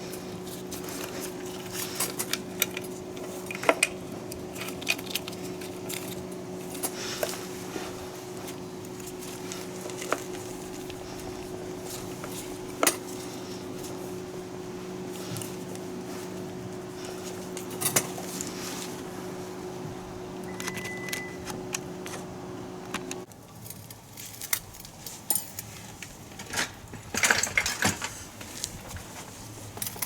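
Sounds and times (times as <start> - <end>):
steady low hum: 0.0 - 26.3
metal tools clinking: 25.2 - 25.8.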